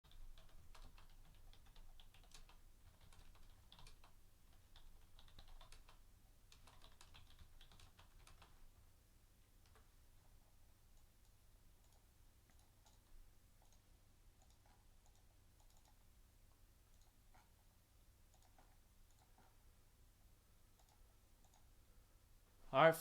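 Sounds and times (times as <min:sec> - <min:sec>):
typing on computer keyboard: 0:00.1 - 0:08.6, 0:11.0 - 0:16.1, 0:18.3 - 0:19.6, 0:20.8 - 0:21.7.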